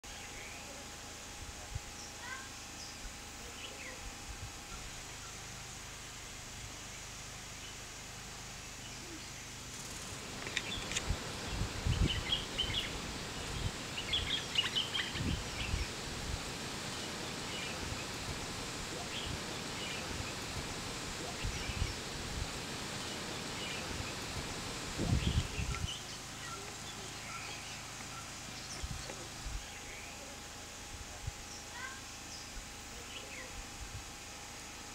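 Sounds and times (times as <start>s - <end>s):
outdoor hiss: 0.0s - 34.9s
small birds chirping: 1.8s - 16.2s, 16.8s - 22.2s, 22.8s - 30.6s.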